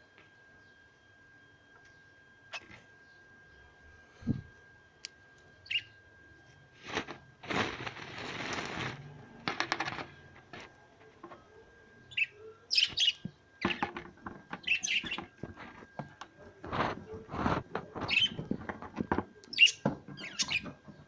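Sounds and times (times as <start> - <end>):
parrot chirping: 5.6 - 5.9, 12.1 - 13.8, 14.6 - 15.3
rustling noise: 6.7 - 10.7, 16.6 - 19.1.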